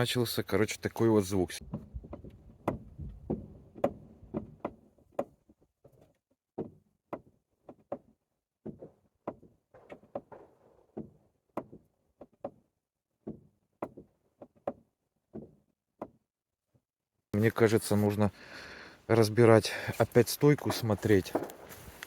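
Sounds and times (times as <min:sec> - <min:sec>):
suspension knocks and clicks: 0:01.6 - 0:16.2.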